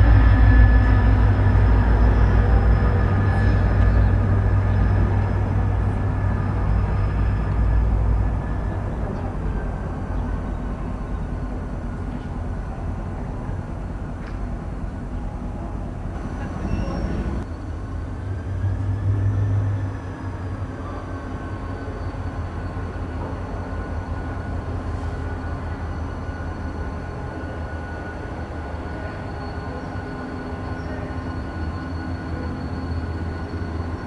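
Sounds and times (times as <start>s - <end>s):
train rumble and hum: 0.0s - 34.0s.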